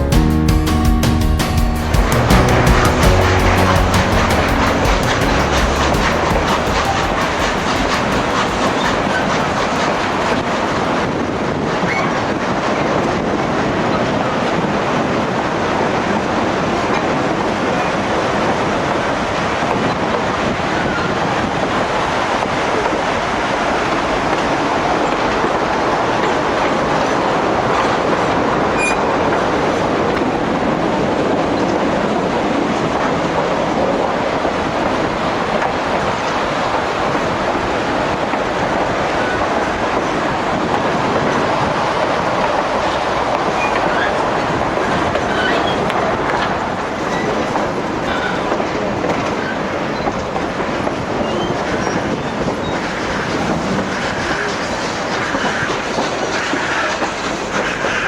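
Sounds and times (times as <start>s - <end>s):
train wheels rumbling on rails: 0.0s - 58.0s
clicking over rail joints: 2.1s - 30.7s, 34.4s - 58.0s
faint wheel squeals: 28.8s - 29.3s, 45.2s - 46.0s, 51.0s - 58.0s.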